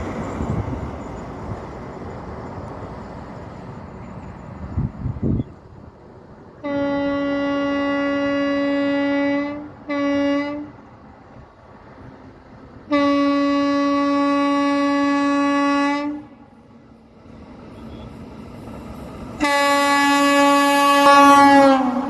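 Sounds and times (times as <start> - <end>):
train horn blasts: 6.6 - 10.8, 12.9 - 16.5, 19.4 - 22.0.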